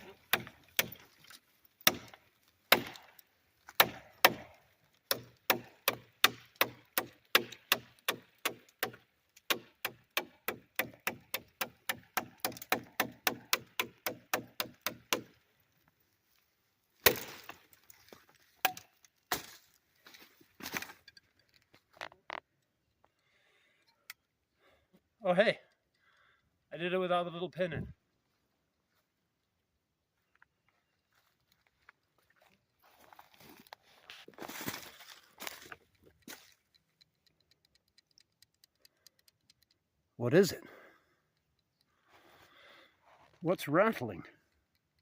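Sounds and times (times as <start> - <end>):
knife chopping wood: 0.0 - 1.2, 1.8 - 3.1, 3.7 - 15.3, 17.0 - 17.6.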